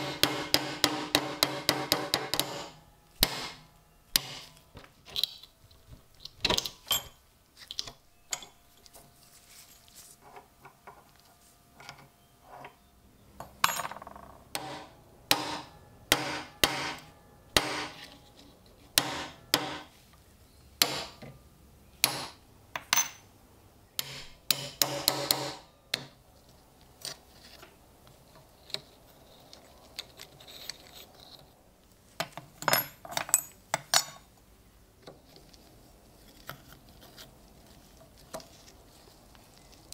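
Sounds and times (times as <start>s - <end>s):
hammer tapping on metal: 0.0s - 4.5s, 14.5s - 18.1s, 19.0s - 19.9s, 24.0s - 26.2s.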